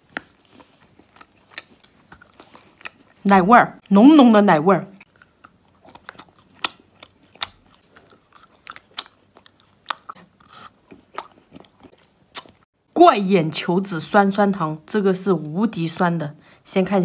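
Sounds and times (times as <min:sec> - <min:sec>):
soft chewing: 0:00.0 - 0:03.9, 0:04.9 - 0:12.7
lollipop crunching: 0:05.0 - 0:12.6.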